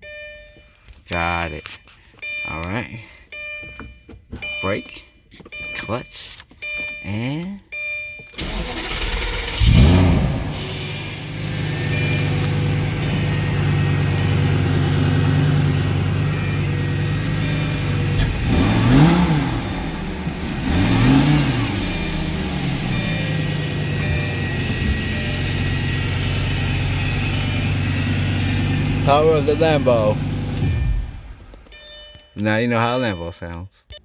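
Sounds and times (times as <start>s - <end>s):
engine throttle blips: 0.0s - 33.3s
car engine starting and idling: 7.7s - 32.2s.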